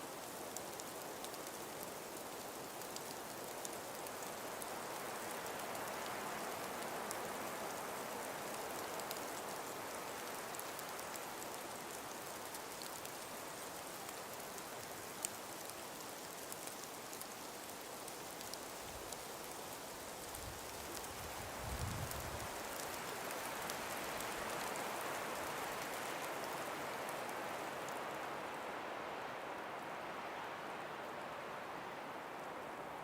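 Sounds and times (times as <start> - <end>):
faint ticks: 0.0 - 28.6
soft wind rush: 20.4 - 22.7.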